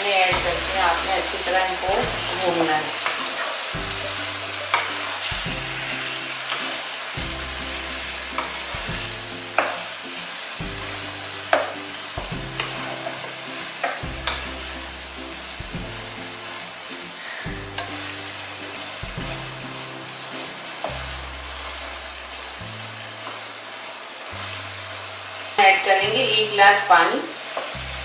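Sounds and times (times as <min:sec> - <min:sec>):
food sizzling in oil: 0:00.0 - 0:28.0
quiet background music: 0:00.0 - 0:28.0
spoon scraping and knocking pan: 0:10.6 - 0:14.7.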